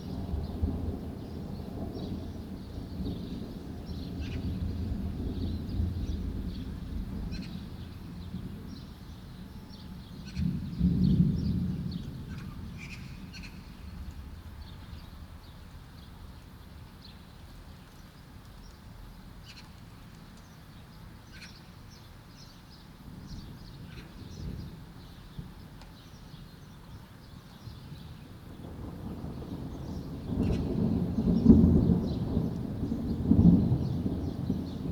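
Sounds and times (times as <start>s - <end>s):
thunder rumbling: 0.0s - 9.5s, 10.1s - 15.4s, 28.5s - 34.9s
small birds chirping: 9.7s - 16.2s, 17.0s - 28.5s.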